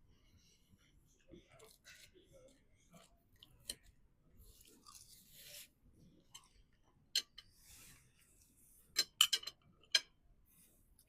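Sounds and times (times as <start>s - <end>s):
person chewing: 4.5s - 5.2s.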